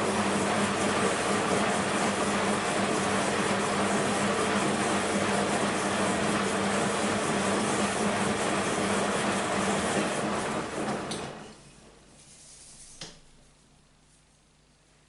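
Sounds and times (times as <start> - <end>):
washing machine spinning: 0.0 - 11.6.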